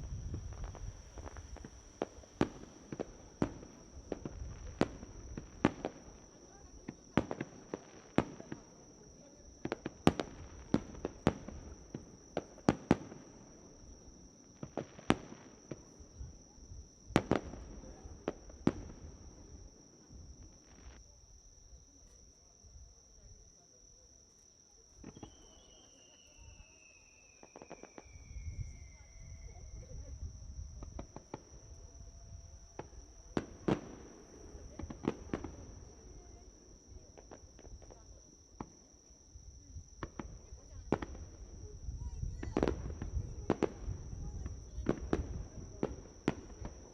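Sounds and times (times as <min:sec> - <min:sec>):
fireworks bangs and crackles: 0:00.0 - 0:21.0, 0:24.8 - 0:46.9
high insect trill: 0:00.0 - 0:46.9
firework whistle falling in pitch: 0:25.0 - 0:34.0.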